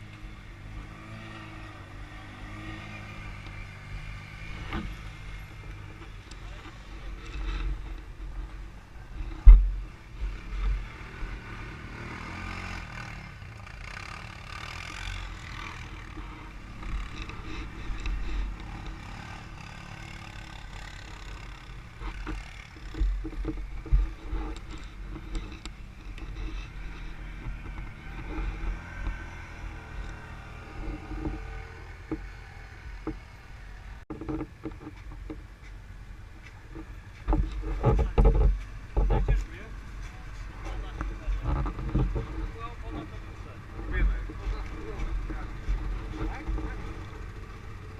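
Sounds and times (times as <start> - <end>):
atv engine revving: 0.0 - 47.9
low thumps and knocks: 9.2 - 10.8, 22.0 - 29.3, 36.7 - 39.6, 40.8 - 42.9.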